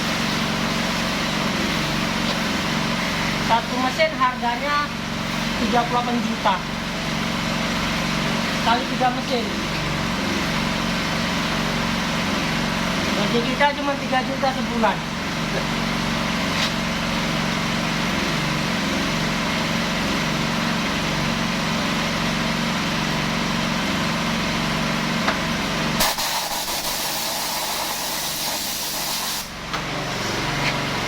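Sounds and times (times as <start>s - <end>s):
small engine running: 0.0s - 31.0s
loud even hiss: 26.0s - 29.5s.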